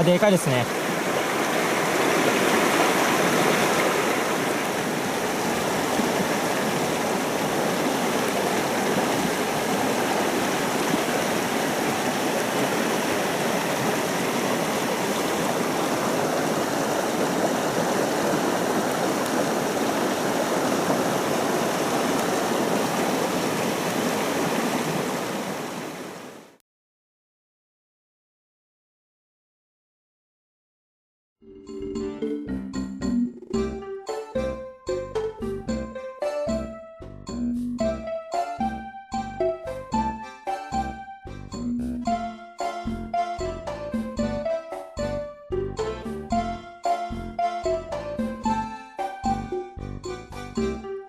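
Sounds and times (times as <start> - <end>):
stream rushing over rocks: 0.0 - 26.6.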